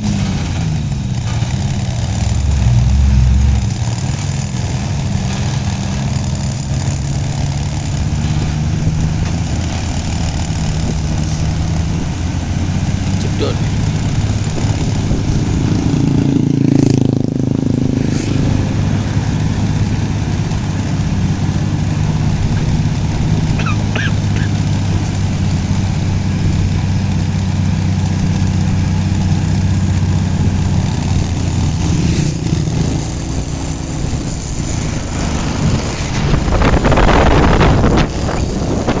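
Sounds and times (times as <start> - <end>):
truck engine running: 0.0 - 39.0
rush of noise: 30.2 - 39.0.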